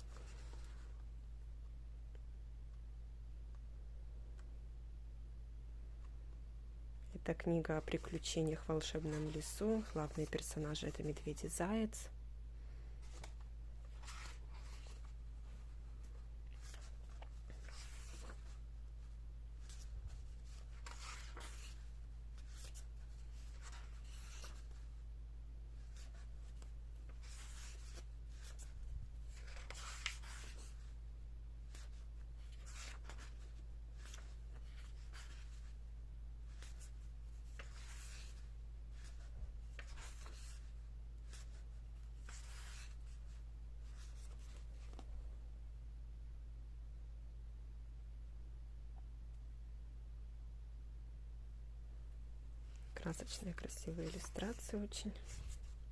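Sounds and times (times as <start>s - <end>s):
book pages turning: 0.0s - 0.9s, 7.8s - 11.1s, 13.0s - 18.6s, 19.6s - 24.9s, 25.8s - 30.9s, 31.7s - 35.8s, 36.5s - 45.1s, 52.9s - 55.8s
low electrical hum: 0.0s - 55.9s.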